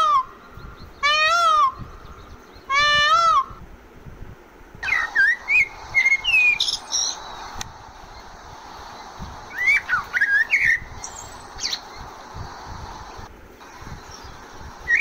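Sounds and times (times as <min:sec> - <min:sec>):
blackbird singing: 0:04.8 - 0:07.5, 0:09.0 - 0:12.2, 0:13.9 - 0:15.0.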